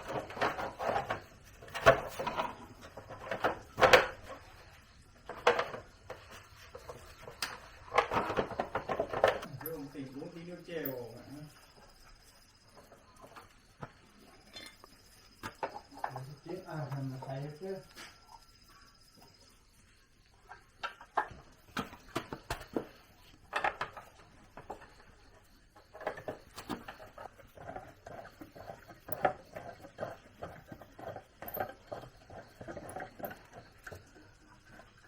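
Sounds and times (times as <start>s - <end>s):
hand tools clicking and clattering: 0.0s - 11.7s, 20.8s - 35.0s.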